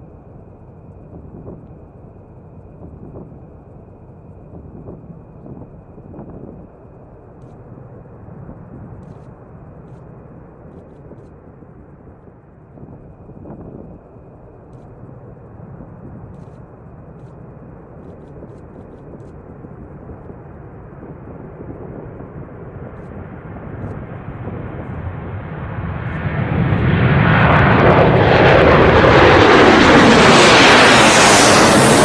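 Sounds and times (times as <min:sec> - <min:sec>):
jet engines roaring: 0:00.0 - 0:32.0.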